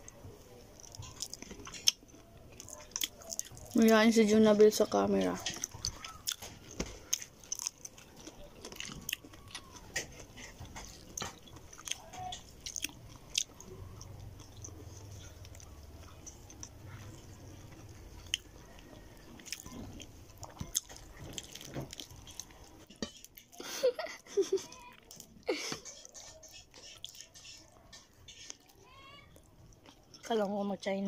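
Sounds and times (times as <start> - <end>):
chewing and biting: 0.7 - 3.8, 5.3 - 23.6, 24.6 - 28.8, 29.4 - 30.4.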